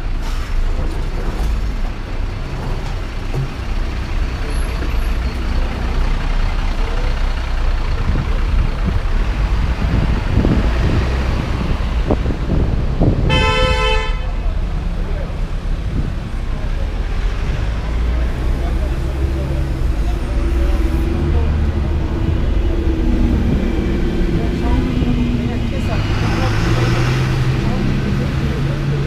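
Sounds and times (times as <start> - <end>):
rumble of motor vehicles: 0.0 - 29.0
vehicle horn: 13.3 - 14.4.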